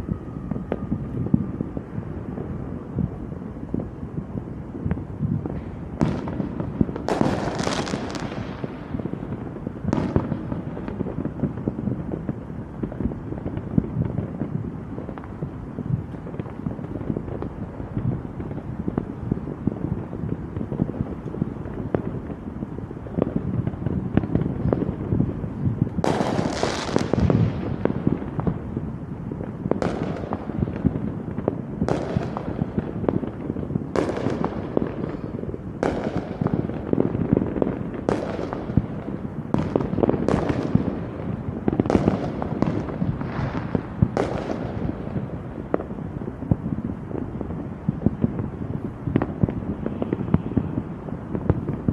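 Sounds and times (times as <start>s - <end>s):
fireworks bursts: 0.0s - 51.9s
rumble and crackle of explosions: 0.0s - 51.9s.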